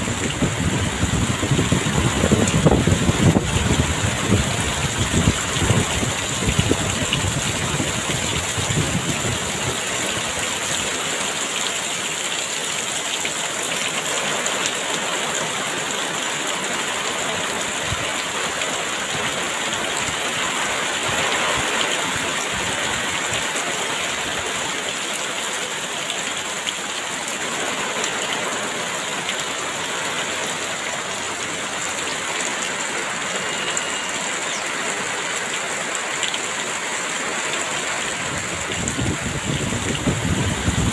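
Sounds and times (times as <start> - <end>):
wind rumbling on microphone: 0.0 - 11.1, 38.2 - 40.9
heavy rain pouring: 0.0 - 40.9
brief high whistle: 27.6 - 28.7, 32.3 - 35.2.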